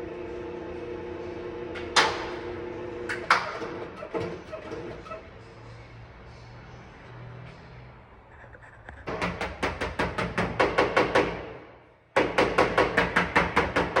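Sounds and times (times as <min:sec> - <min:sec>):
hammer tapping sheet metal: 0:12.2 - 0:14.0.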